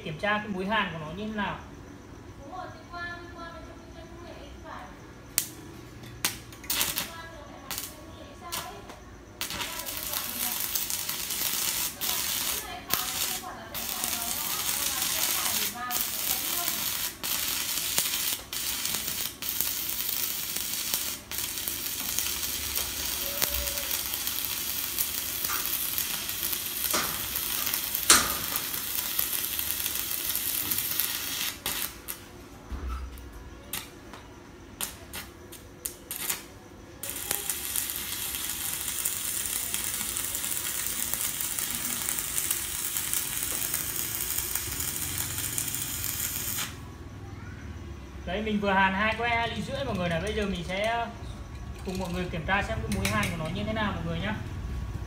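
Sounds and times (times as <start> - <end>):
welding arc crackling sizzle: 5.2 - 47.2, 47.9 - 55.0
arc spitting: 6.2 - 32.3, 34.8 - 46.9.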